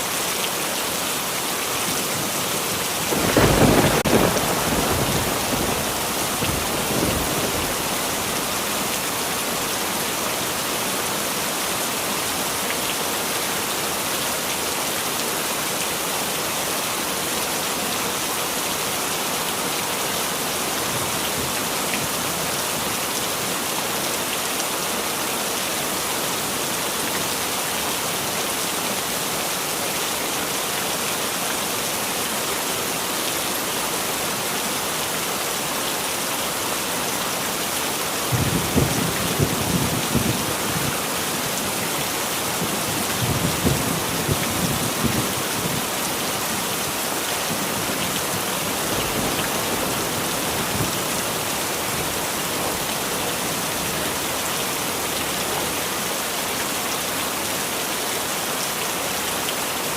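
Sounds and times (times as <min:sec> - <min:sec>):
heavy rain falling: 0:00.0 - 0:59.9
thunder rumble: 0:03.1 - 0:08.1.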